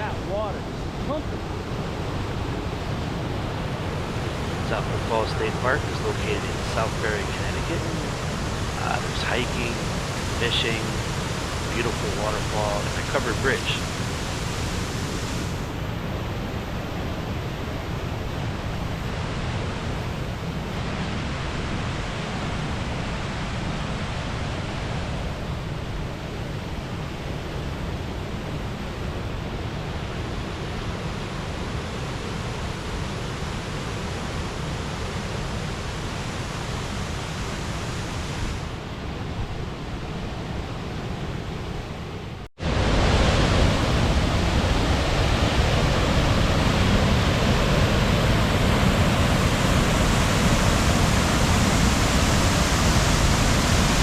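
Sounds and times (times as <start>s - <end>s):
waterfall rushing: 3.9s - 15.6s, 42.6s - 54.0s.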